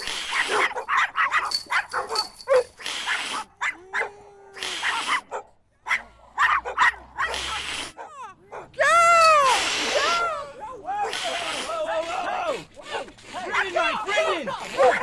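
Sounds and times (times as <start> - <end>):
dogs barking: 0.3 - 4.2, 4.8 - 7.4, 8.0 - 8.8, 12.9 - 15.0.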